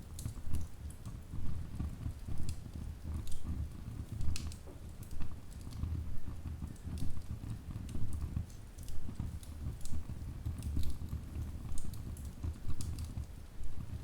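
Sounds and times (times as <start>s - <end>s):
low rumble of burning: 0.0s - 14.0s
wood fire crackling: 0.0s - 14.0s
sharp pops and snaps: 4.2s - 13.8s.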